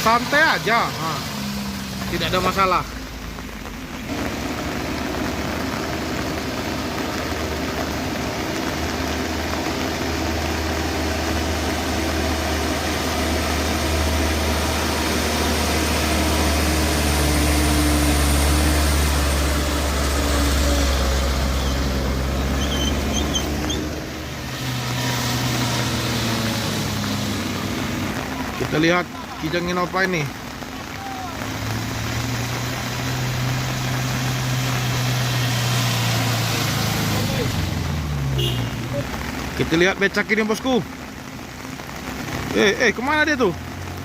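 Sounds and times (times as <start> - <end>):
second vehicle engine: 0.0 - 41.0.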